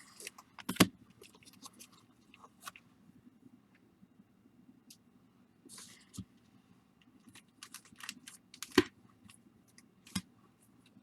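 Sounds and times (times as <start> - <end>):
foil wrappers crinkling: 7.4 - 8.9.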